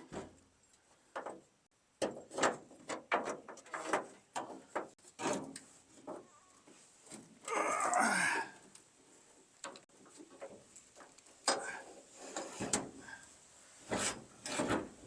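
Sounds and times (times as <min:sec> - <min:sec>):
metal tailgate clunks and scrapes: 0:02.0 - 0:06.2, 0:11.5 - 0:13.0, 0:13.9 - 0:15.0.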